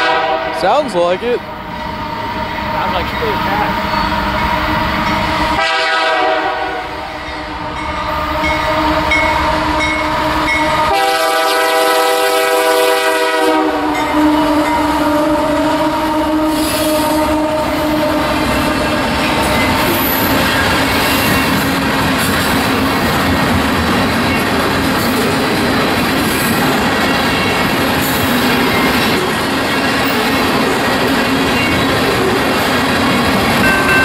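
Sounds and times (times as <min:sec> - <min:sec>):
locomotive horn blasts: 0:00.0 - 0:00.8, 0:05.5 - 0:19.5, 0:33.6 - 0:34.0
train rolling past: 0:00.0 - 0:34.0.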